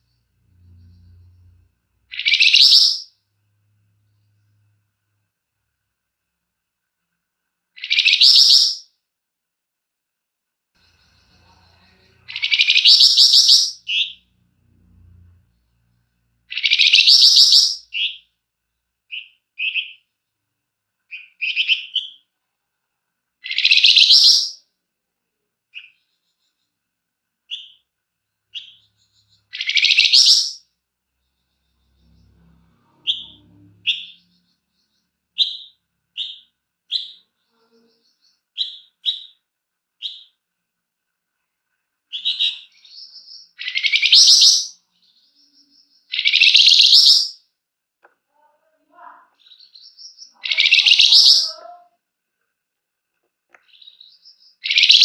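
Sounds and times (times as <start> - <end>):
short sharp bird chirps: 0.1 - 3.1, 28.5 - 30.7, 31.3 - 39.4, 42.1 - 47.4, 49.4 - 51.5
harsh buzzy bird calls: 48.9 - 51.8.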